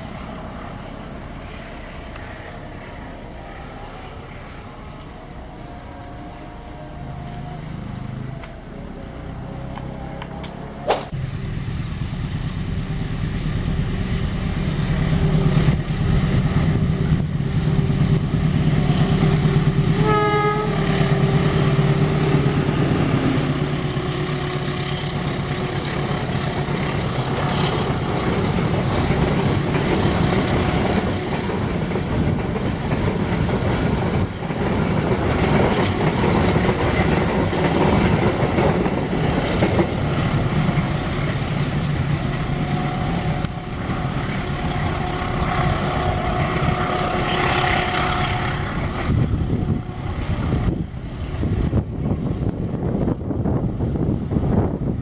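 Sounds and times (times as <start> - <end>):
train rumbling past: 0.0 - 55.0
train horn blast: 3.4 - 8.2, 18.8 - 25.7, 42.6 - 50.8.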